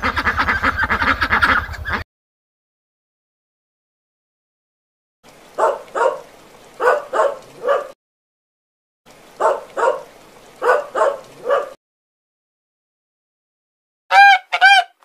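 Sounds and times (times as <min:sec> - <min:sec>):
dog barking: 0:05.6 - 0:08.0, 0:09.4 - 0:11.8.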